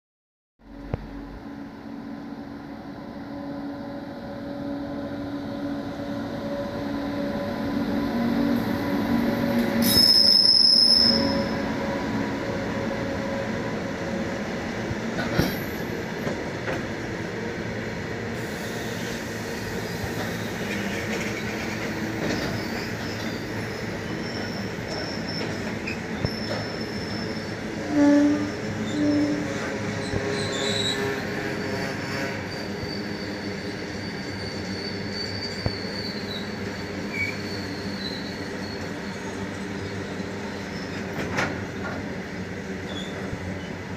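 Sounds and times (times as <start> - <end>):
freight train rumbling past: 0.6 - 43.9
wheel squeal: 9.8 - 11.6, 19.8 - 41.5, 42.8 - 43.8.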